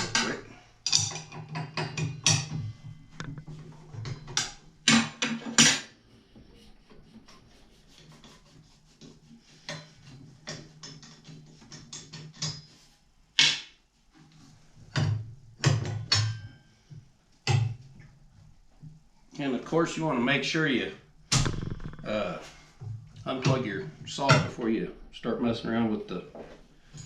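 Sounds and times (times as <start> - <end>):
hand tools clicking on metal parts: 0.0 - 2.6.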